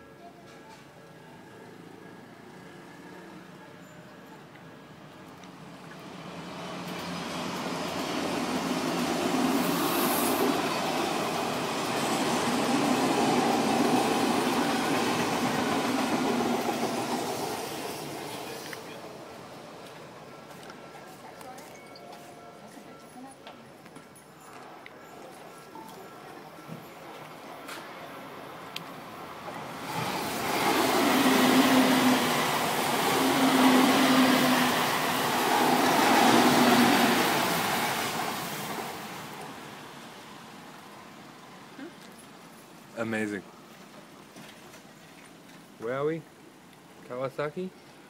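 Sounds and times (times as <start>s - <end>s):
electric train passing: 1.2s - 21.1s, 24.6s - 41.8s.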